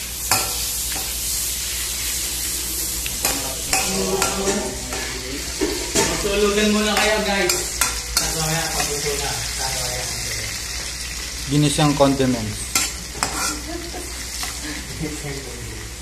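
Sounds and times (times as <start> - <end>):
metal spatula scraping wok: 0.0 - 10.2, 12.7 - 13.8
garlic and onion sizzling in oil: 0.0 - 16.0
spatula clinking on metal: 6.9 - 9.1, 12.7 - 13.7.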